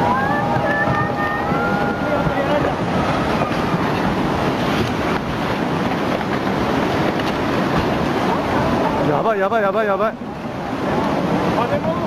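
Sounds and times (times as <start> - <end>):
wind buffeting microphone: 0.0 - 9.3
floodwater rushing: 0.0 - 12.0.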